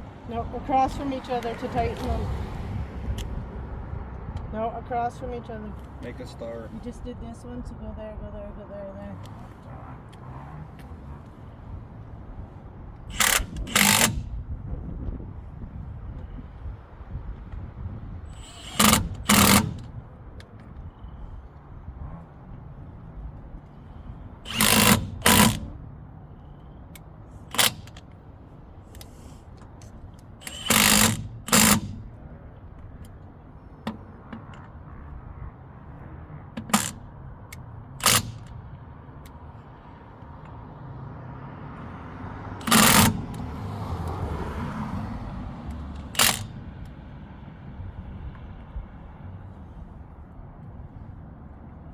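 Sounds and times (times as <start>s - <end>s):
rushing background noise: 0.0s - 51.9s
impact wrench bursts: 13.0s - 14.4s, 18.3s - 20.0s, 23.6s - 25.8s, 27.3s - 28.2s, 28.9s - 32.3s, 36.5s - 39.4s, 42.6s - 43.8s, 45.7s - 46.9s.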